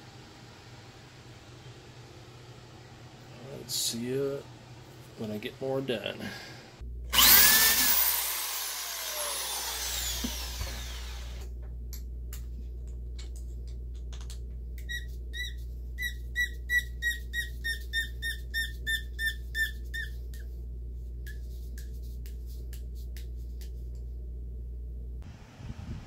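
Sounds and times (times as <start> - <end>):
electric drill boring into cork: 7.1 - 11.5.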